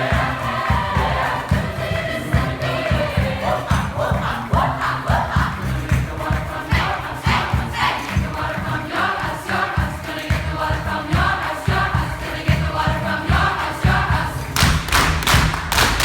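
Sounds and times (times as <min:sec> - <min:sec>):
choir singing: 0:00.0 - 0:16.0
loud sharp hits: 0:14.6 - 0:16.0.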